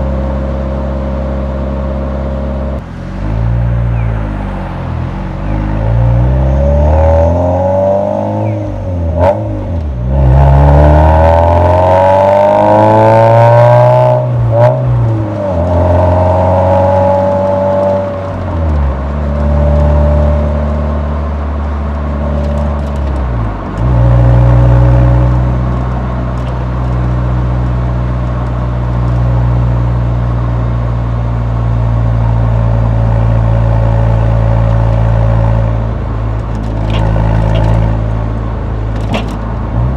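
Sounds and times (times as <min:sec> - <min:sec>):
car exhaust revving: 0:32.9 - 0:39.9.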